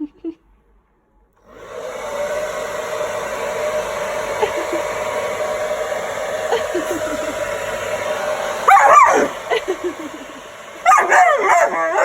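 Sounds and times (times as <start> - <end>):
hairdryer blowing: 1.4 - 12.0.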